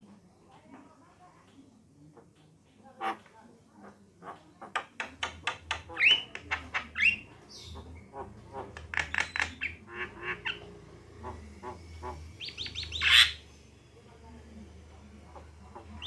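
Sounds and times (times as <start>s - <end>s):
myna chattering: 3.0s - 13.6s.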